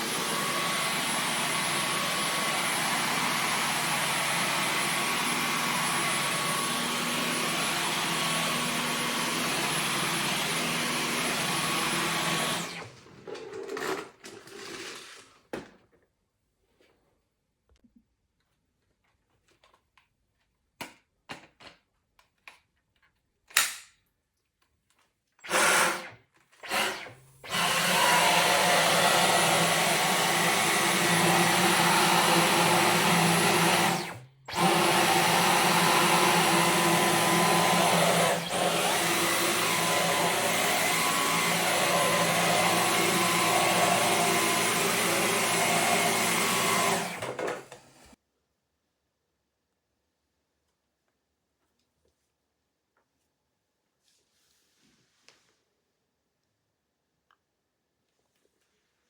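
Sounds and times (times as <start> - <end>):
cordless vacuum running: 0.0 - 15.2, 25.4 - 48.2.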